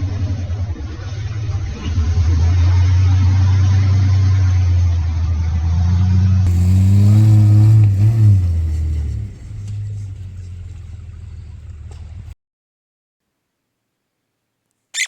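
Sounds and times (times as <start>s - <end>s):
off-road vehicle engine revving: 1.9s - 12.4s.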